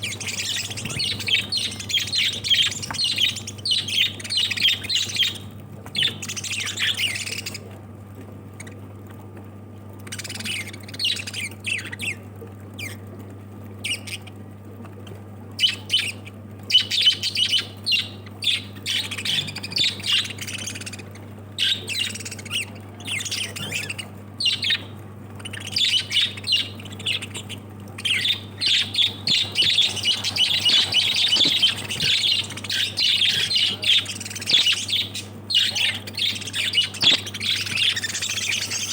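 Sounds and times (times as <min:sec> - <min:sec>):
lovebirds chirping and squawking: 0:00.0 - 0:07.7, 0:10.0 - 0:12.2, 0:13.8 - 0:14.3, 0:15.0 - 0:38.9
steady low hum: 0:00.0 - 0:38.9.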